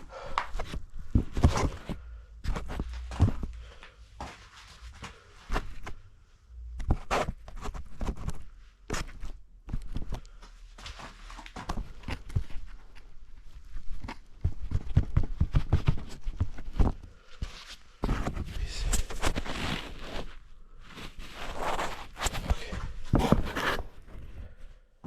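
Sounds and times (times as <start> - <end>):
knocks and scrapes: 10.9 - 24.5
boots crunching in snow: 18.9 - 20.3, 21.0 - 23.9.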